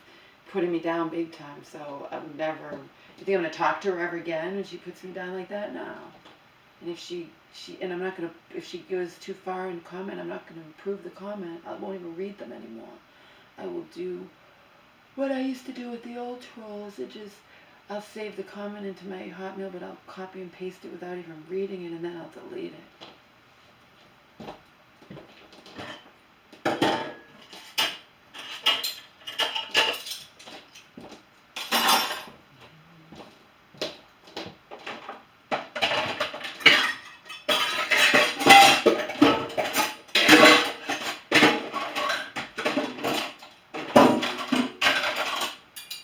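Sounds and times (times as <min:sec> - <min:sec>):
dishes and cutlery clinking: 0:25.7 - 0:26.1, 0:26.7 - 0:30.9, 0:31.6 - 0:32.4, 0:34.8 - 0:46.0.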